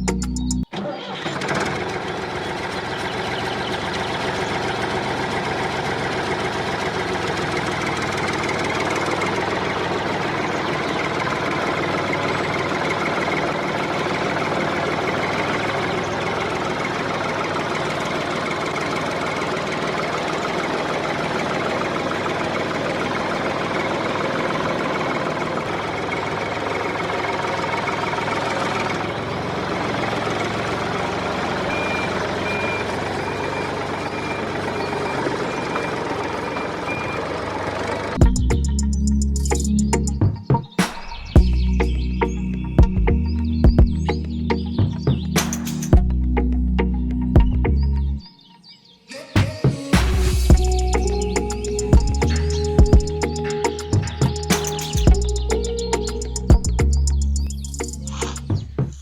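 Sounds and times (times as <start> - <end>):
small engine knocking: 1.0 - 40.1.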